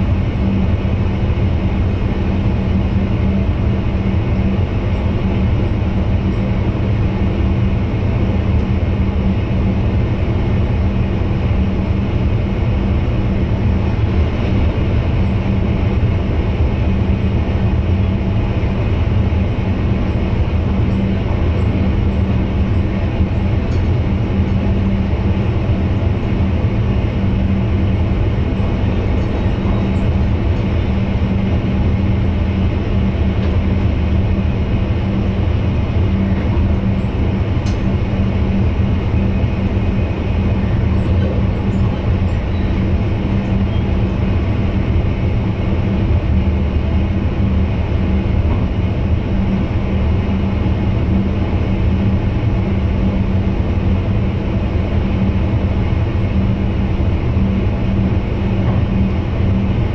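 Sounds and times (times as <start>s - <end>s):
steady low hum: 0.0s - 59.9s
train wheels rumbling on rails: 0.0s - 59.9s.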